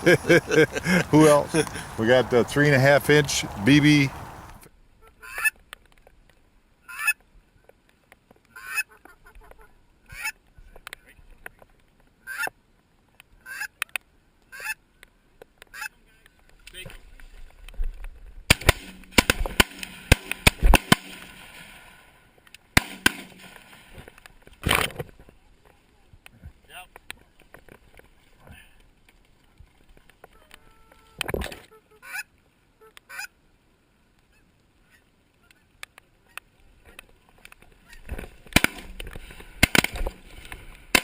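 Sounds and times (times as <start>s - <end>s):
goose honks: 30.3s - 33.3s.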